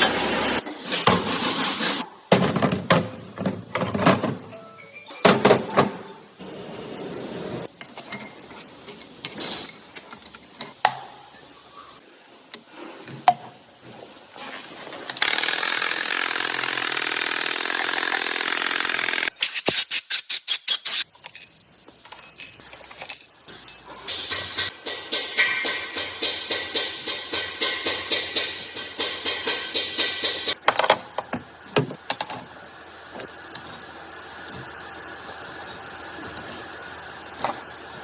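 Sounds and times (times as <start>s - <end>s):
loud hiss: 6.4s - 7.7s
power tool bursts: 15.2s - 19.9s.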